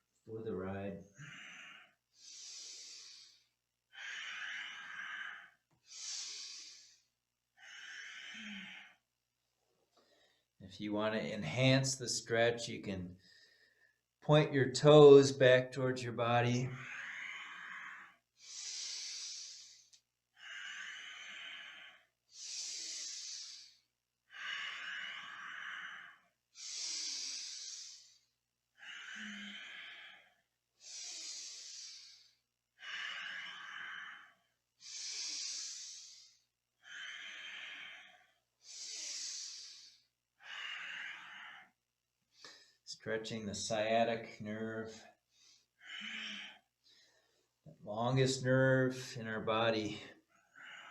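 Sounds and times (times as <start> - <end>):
deep breathing close to microphone: 1.1 - 9.1, 13.1 - 14.1, 16.7 - 42.9, 44.9 - 47.8, 49.9 - 50.9.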